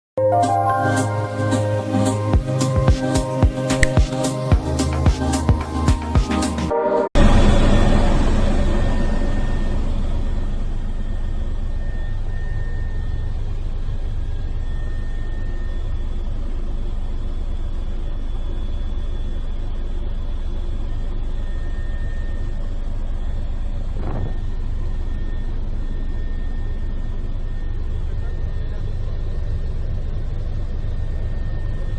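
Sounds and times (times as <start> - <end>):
helicopter engine and rotor rumble: 1.1 - 31.9
faint whine tones: 7.2 - 31.9.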